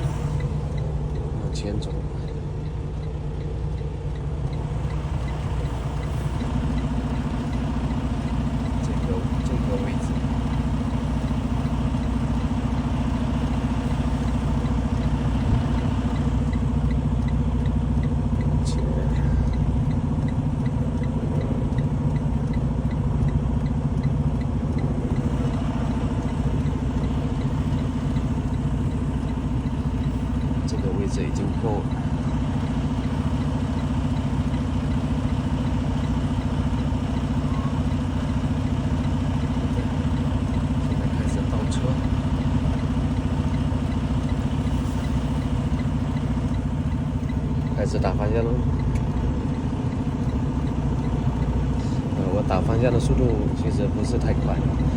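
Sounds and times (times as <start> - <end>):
diesel truck engine running: 0.0 - 54.9
faint ticks: 16.1 - 30.8.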